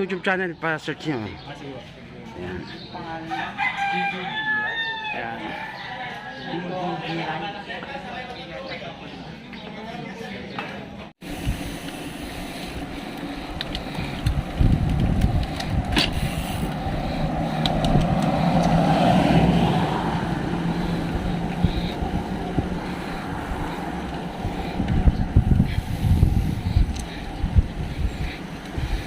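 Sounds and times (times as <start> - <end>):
wind buffeting microphone: 11.3 - 29.0
vehicle passing by: 12.1 - 29.0.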